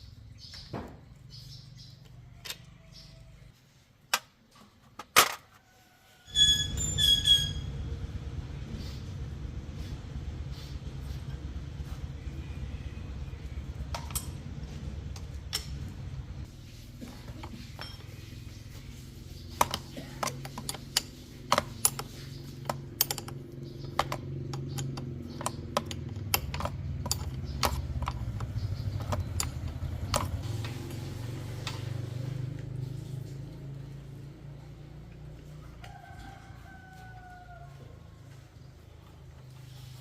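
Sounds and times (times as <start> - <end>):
metal tools clinking: 17.4 - 18.3, 19.6 - 30.4.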